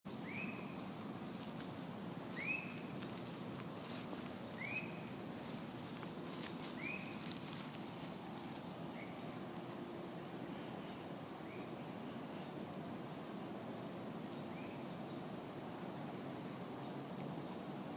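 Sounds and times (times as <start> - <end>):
bird calling: 0.1 - 9.4
faint crackles: 0.4 - 8.7.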